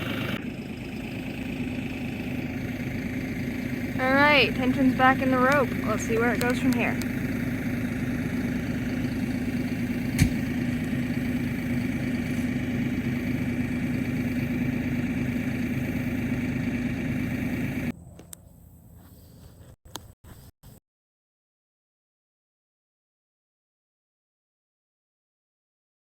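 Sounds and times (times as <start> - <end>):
engine running steadily: 0.0 - 20.1
sharp click: 10.2 - 10.4.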